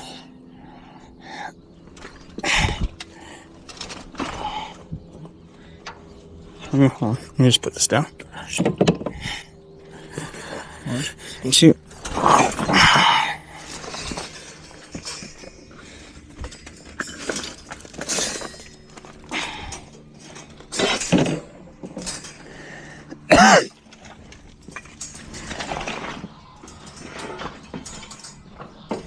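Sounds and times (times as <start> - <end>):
junk clanking and scraping: 1.1 - 29.0.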